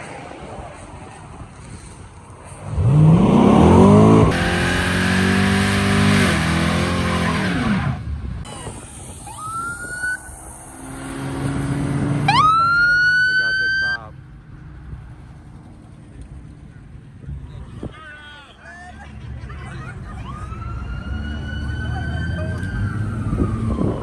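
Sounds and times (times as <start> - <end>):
car engine revving: 2.6 - 13.6
shrill rising tone: 8.5 - 14.0.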